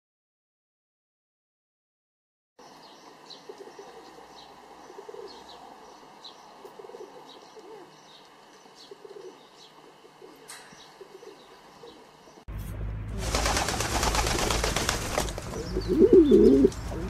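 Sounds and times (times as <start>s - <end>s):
small birds chirping: 2.6s - 12.5s, 13.4s - 17.0s
pigeon cooing: 3.3s - 8.2s, 8.8s - 12.2s, 15.4s - 17.0s.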